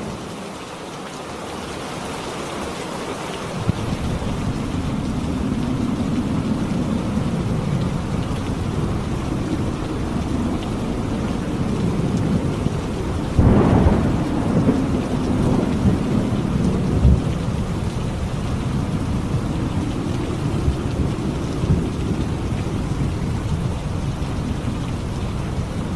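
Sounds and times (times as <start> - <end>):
heavy rain: 0.0 - 25.9
loud thunderclap: 3.6 - 23.7
rolling thunder: 3.6 - 25.9.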